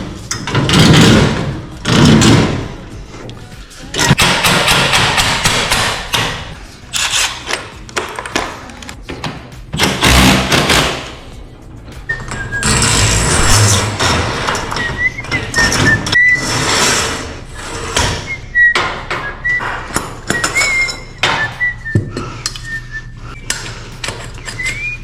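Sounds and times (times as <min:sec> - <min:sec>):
garage door rattling: 0:00.0 - 0:02.9, 0:04.0 - 0:08.4, 0:12.4 - 0:19.6.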